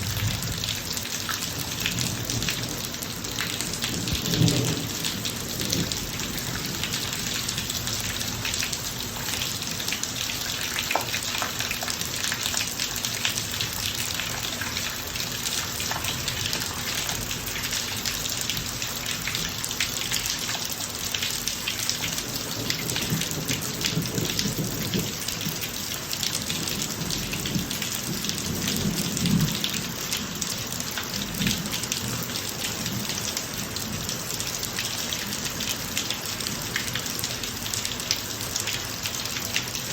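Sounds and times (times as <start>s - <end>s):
thunder rumbles: 0.0s - 8.3s
rain splashing on driveway: 0.0s - 39.9s.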